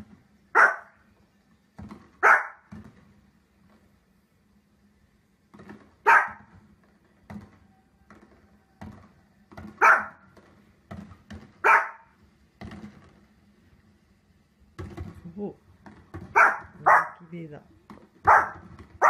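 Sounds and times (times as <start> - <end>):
small dog barking sharply: 0.6 - 0.9, 2.2 - 2.6, 6.0 - 6.5, 9.8 - 10.2, 11.6 - 12.1, 16.3 - 17.3, 18.2 - 18.6.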